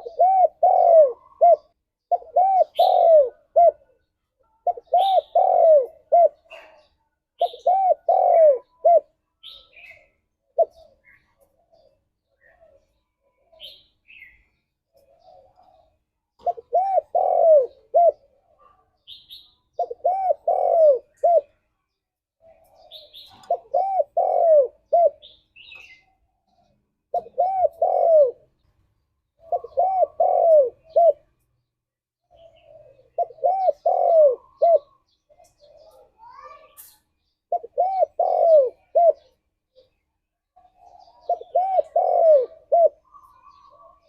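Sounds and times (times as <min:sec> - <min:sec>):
dove cooing: 0:00.0 - 0:21.7, 0:22.4 - 0:28.7, 0:29.3 - 0:31.4, 0:32.3 - 0:36.9, 0:37.5 - 0:40.0, 0:40.6 - 0:44.0
small bird chirping: 0:00.0 - 0:44.0.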